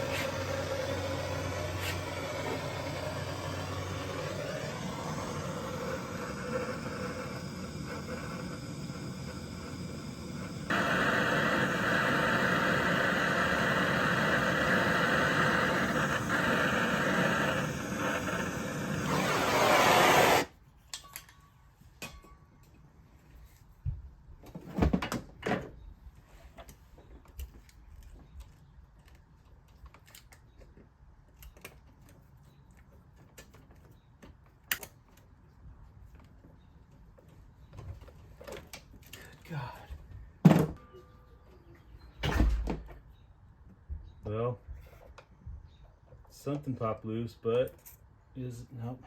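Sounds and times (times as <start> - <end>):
power tool hissing whir: 0.0 - 20.5.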